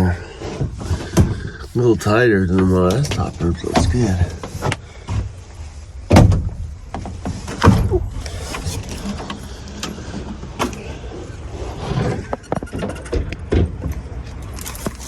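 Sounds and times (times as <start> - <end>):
knocks and thumps: 6.1 - 9.4
rustling of gear being handled: 14.5 - 15.0.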